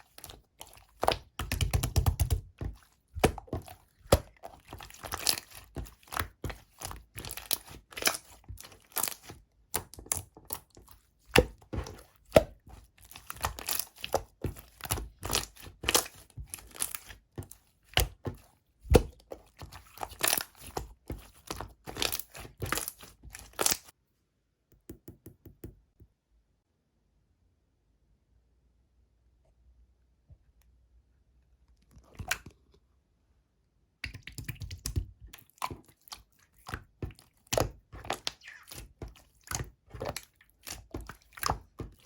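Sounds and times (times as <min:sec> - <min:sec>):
slime squished by hand: 0:00.0 - 0:23.9, 0:34.0 - 0:42.0.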